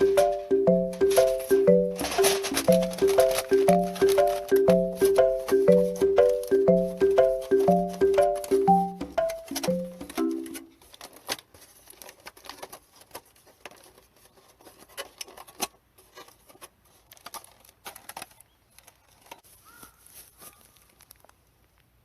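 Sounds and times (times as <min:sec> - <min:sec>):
music: 0:00.0 - 0:10.7
small sharp clicks and crackles: 0:10.8 - 0:19.5, 0:20.1 - 0:22.0.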